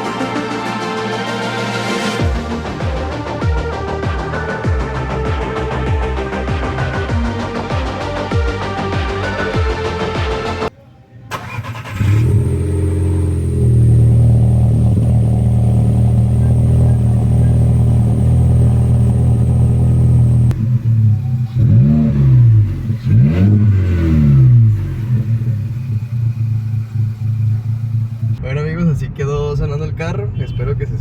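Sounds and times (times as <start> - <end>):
car engine idling: 11.2 - 28.4
car engine revving: 11.3 - 28.4.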